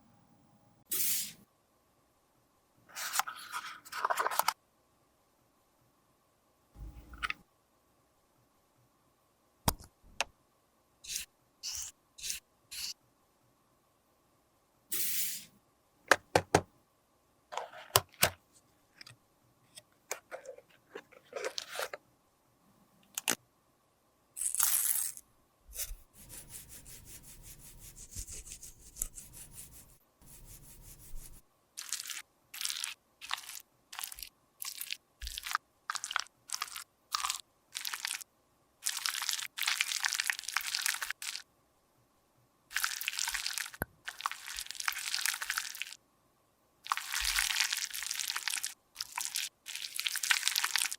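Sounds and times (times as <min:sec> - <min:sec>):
crunching and scraping cosmetics: 0:02.9 - 0:04.6, 0:19.7 - 0:22.0, 0:24.4 - 0:41.4, 0:46.9 - 0:50.9.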